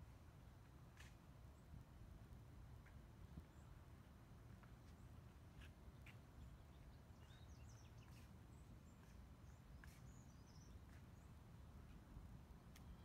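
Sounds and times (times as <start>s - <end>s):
small birds chirping: 4.8s - 12.1s.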